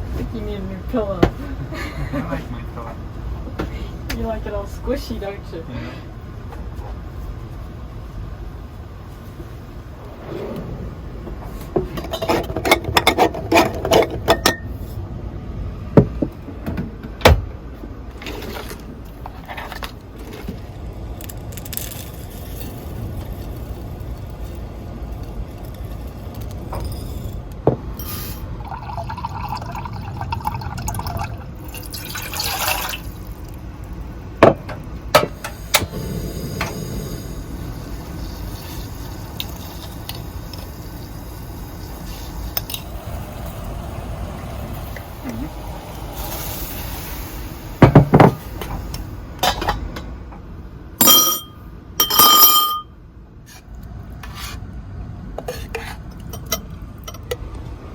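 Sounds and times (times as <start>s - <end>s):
strong wind rumbling: 9.7s - 12.0s, 35.8s - 38.6s, 42.8s - 47.8s
brief hiss: 28.0s - 28.5s.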